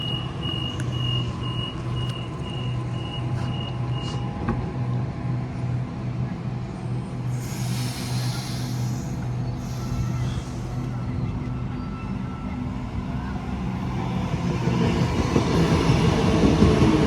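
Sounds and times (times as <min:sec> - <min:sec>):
large vehicle idling: 0:00.0 - 0:04.3, 0:06.6 - 0:13.4
air hiss: 0:07.3 - 0:11.0.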